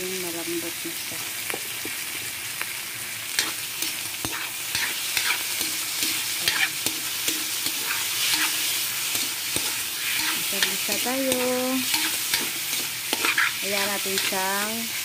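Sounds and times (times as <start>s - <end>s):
meat sizzling in hot oil: 0.0s - 15.0s
spatula scraping wok: 3.3s - 15.0s.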